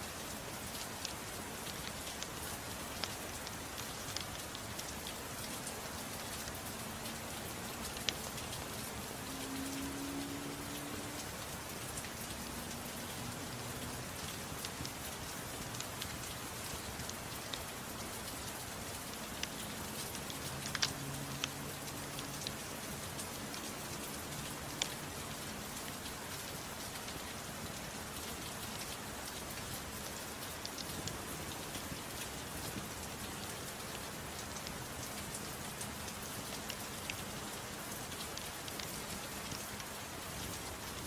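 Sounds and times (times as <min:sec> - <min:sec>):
gentle rain falling: 0:00.0 - 0:41.0
faint ticks: 0:19.1 - 0:23.7.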